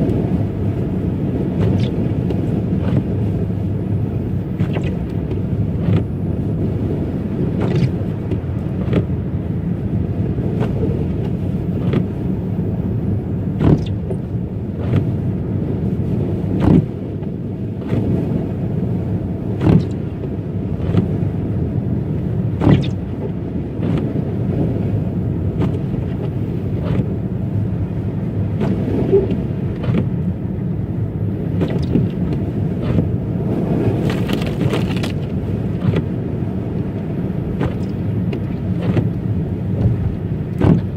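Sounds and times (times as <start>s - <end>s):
tyre rumble on snowy road: 0.0s - 40.9s.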